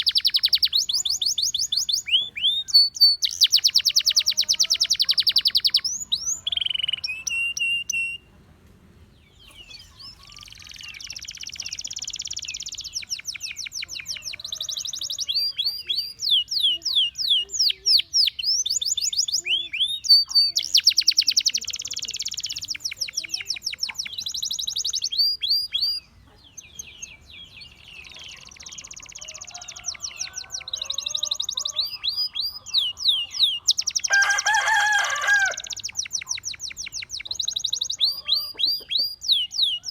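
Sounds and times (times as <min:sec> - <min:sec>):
canary singing trills: 0:00.0 - 0:08.3, 0:09.3 - 0:39.9
lower-pitched bird call: 0:00.0 - 0:08.3, 0:26.8 - 0:39.9.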